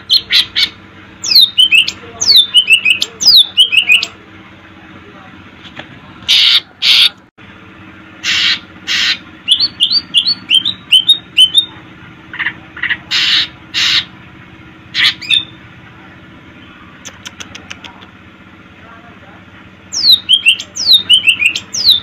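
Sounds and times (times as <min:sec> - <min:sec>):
bird calling with harsh rasping notes: 0:00.0 - 0:04.2, 0:06.2 - 0:07.2, 0:08.2 - 0:14.2, 0:14.8 - 0:15.7, 0:19.9 - 0:22.0
bird whistles: 0:08.3 - 0:11.7, 0:20.0 - 0:22.0.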